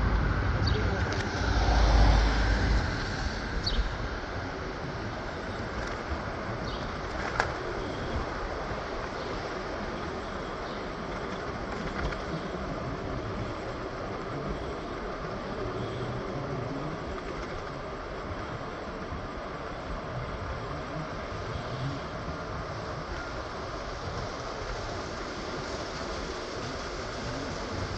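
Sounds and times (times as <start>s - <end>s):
train rumbling on rails: 0.0s - 27.9s.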